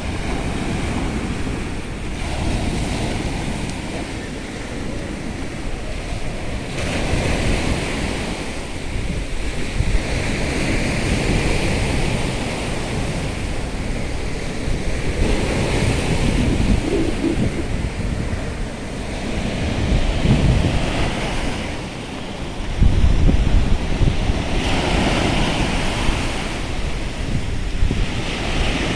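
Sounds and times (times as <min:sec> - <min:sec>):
sea waves breaking on shore: 0:00.0 - 0:28.9
wind rumble on microphone: 0:00.0 - 0:28.9.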